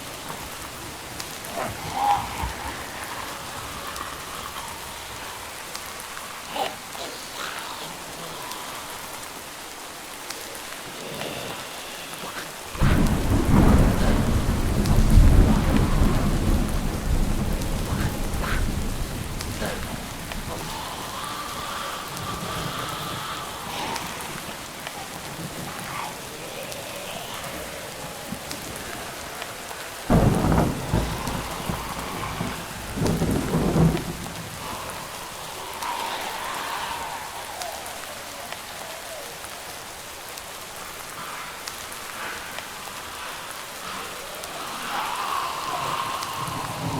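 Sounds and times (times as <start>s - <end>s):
steady rain: 0.0s - 46.9s
thunder clap and rumble: 12.2s - 39.8s, 44.6s - 46.9s.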